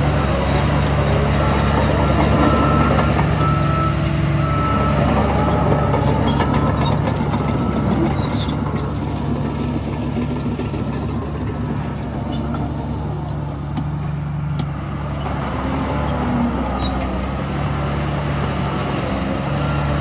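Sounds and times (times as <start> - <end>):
diesel machinery engine: 0.0 - 20.0
high squealing tones: 1.4 - 13.7.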